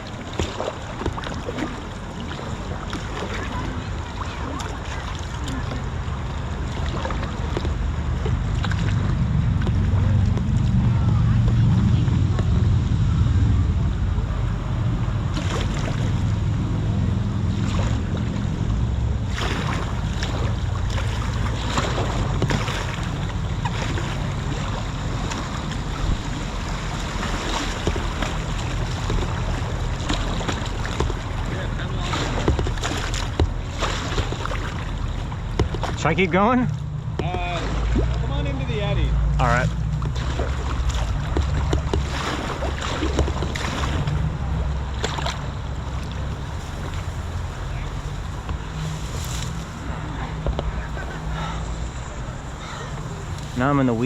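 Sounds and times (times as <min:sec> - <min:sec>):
river water splashing: 0:00.0 - 0:54.0
wind rumble on microphone: 0:00.0 - 0:54.0.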